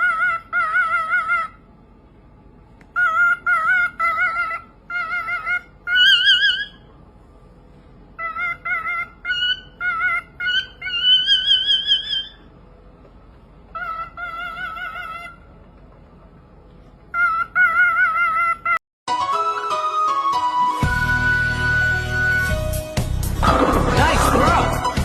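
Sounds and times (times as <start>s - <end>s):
bird calling in wavering notes: 3.0s - 6.9s, 8.2s - 12.5s.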